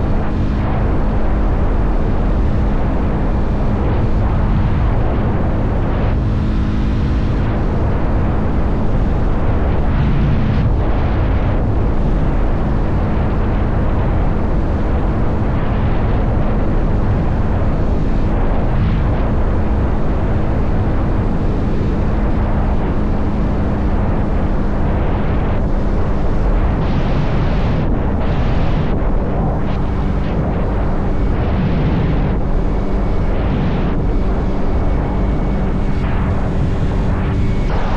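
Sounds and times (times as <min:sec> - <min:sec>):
motorcycle engine hum: 0:00.0 - 0:37.9
wind buffeting microphone: 0:00.0 - 0:37.9.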